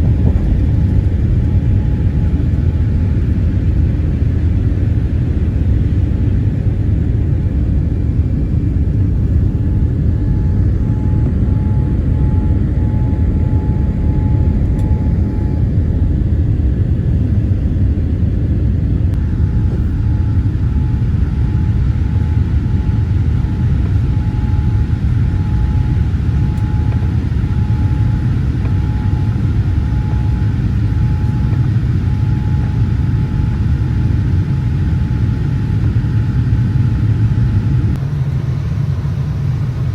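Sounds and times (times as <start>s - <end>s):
jet engine rumble in cabin: 0.0s - 39.9s
faint pulsing high tone: 8.6s - 17.2s, 19.1s - 34.1s.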